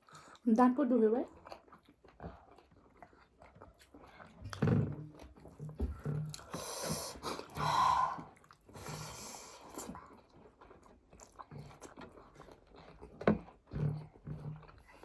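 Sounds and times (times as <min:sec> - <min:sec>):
chewing: 0:00.0 - 0:15.0
hissy breaths through the nose: 0:06.4 - 0:09.8.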